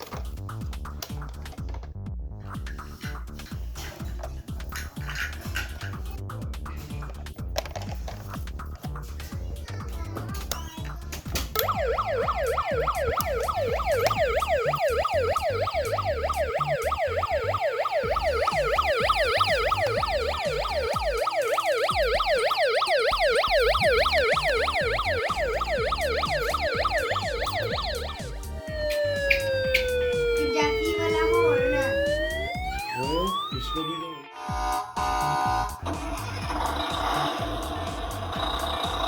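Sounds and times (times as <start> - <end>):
toy siren yelping: 11.6 - 39.0.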